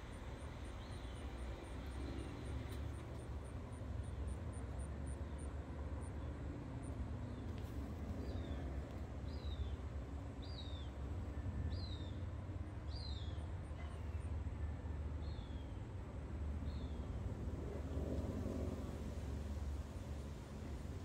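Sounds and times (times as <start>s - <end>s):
steady low rumble: 0.0s - 6.2s, 16.5s - 21.0s.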